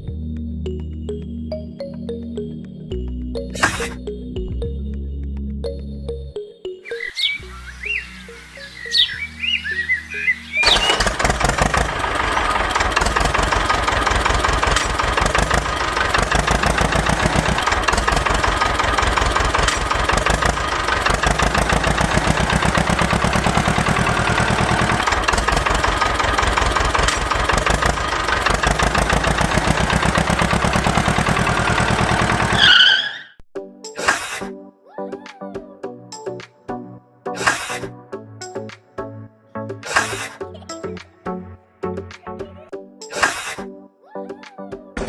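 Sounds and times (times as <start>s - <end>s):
small tractor engine running: 10.6s - 33.2s.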